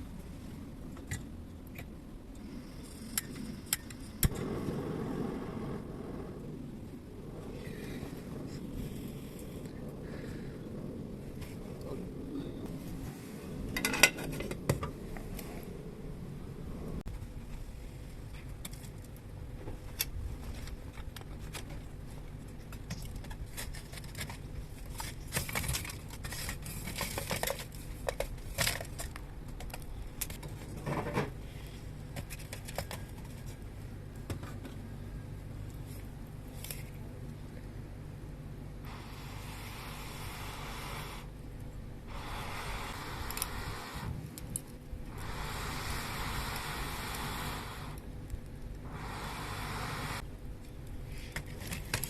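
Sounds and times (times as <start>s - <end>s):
steady low rumble: 0.0s - 26.8s, 33.0s - 52.0s
crinkling or tearing hiss: 38.8s - 52.0s.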